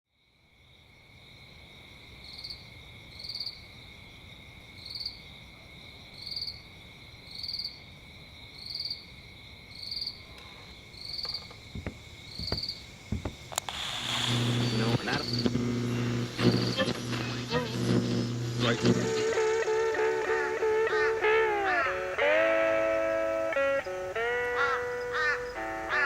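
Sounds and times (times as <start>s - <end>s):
insects trilling: 0.7s - 26.0s
sharp knocks: 11.3s - 13.5s.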